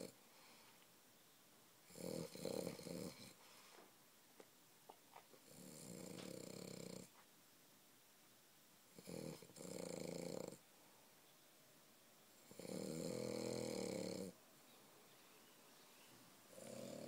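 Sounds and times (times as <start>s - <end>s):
dog snoring: 1.9s - 3.4s, 5.4s - 7.2s, 8.9s - 10.6s, 12.4s - 14.4s, 16.5s - 17.0s.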